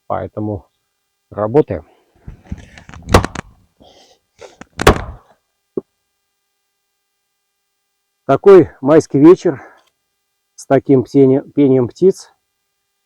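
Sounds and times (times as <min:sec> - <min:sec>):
knocks and thuds: 0:02.2 - 0:03.6, 0:04.6 - 0:05.2.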